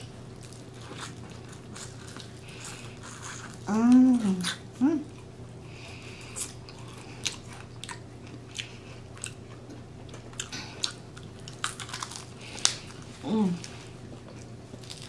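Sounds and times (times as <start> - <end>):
person chewing: 0.0 - 15.0
crunchy clicks and smacks: 6.4 - 15.0.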